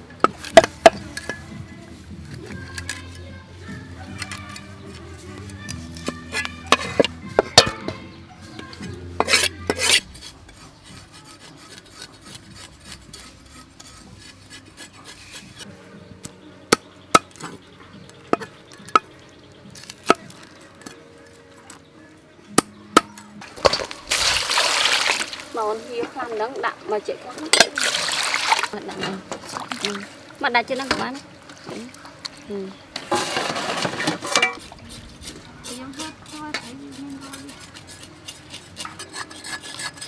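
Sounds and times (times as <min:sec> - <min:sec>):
utensils scraping and rubbing: 0:00.0 - 0:15.7, 0:30.4 - 0:40.0
kitchen utensils knocking: 0:04.0 - 0:10.1, 0:26.0 - 0:31.8, 0:32.9 - 0:34.7.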